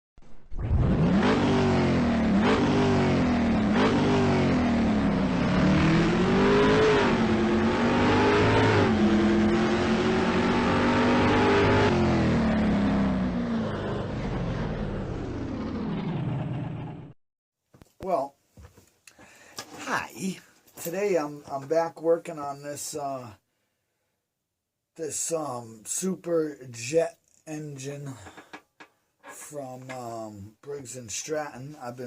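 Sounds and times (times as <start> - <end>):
engine revving: 0.5 - 17.2.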